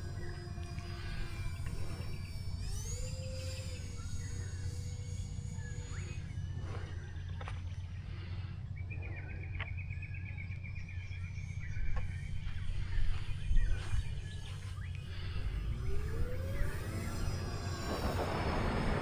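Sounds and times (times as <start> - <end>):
wind rumbling on microphone: 11.5 - 19.0.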